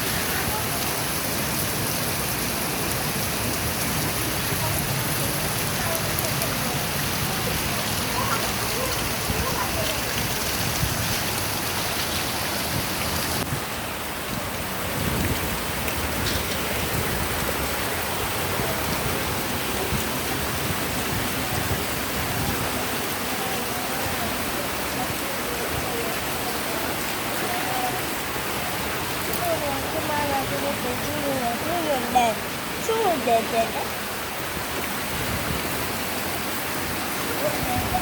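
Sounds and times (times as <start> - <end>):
faint children's voices: 0.0 - 1.1, 4.4 - 11.0
stream water rushing: 0.0 - 38.0.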